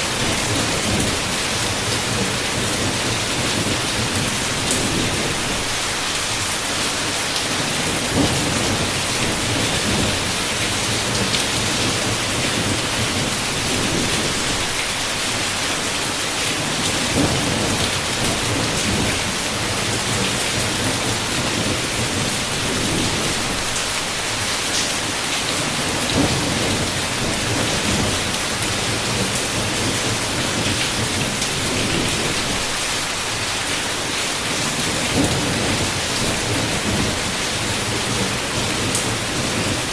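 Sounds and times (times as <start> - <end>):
heavy rain falling: 0.0 - 39.9
low thunder rumbling: 7.8 - 14.9, 16.6 - 23.8, 25.8 - 32.8.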